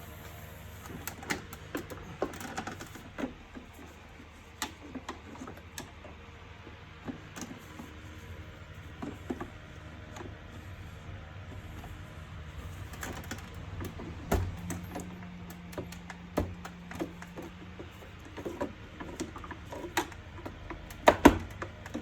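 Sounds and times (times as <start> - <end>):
plastic parts clicking and knocking: 12.9 - 22.0.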